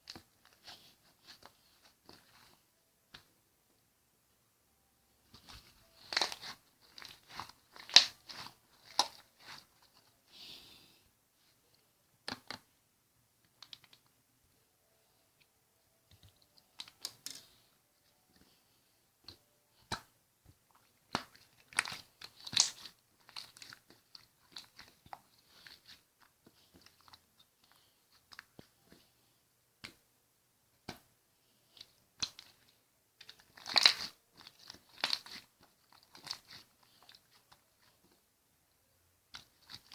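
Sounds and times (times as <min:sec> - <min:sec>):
slime crackling and popping: 0:05.4 - 0:09.9, 0:21.0 - 0:27.2, 0:33.2 - 0:37.2, 0:39.3 - 0:39.9.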